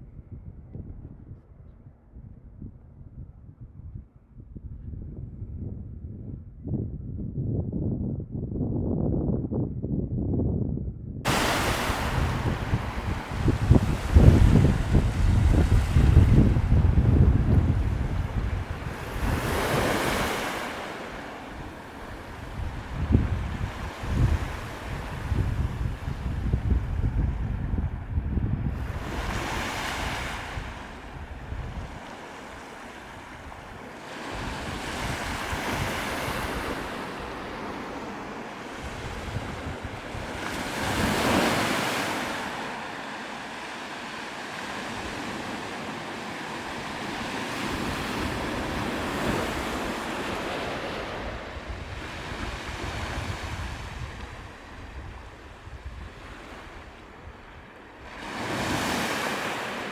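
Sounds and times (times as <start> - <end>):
wind rumbling on microphone: 0.0 - 59.9
sea waves washing onto shore: 11.3 - 27.7, 28.6 - 59.9.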